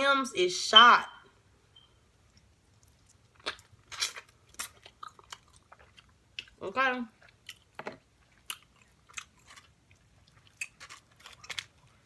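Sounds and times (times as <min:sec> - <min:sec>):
person chewing food: 0:02.2 - 0:06.6, 0:07.2 - 0:12.0
food crunches: 0:02.8 - 0:06.6, 0:07.2 - 0:12.0.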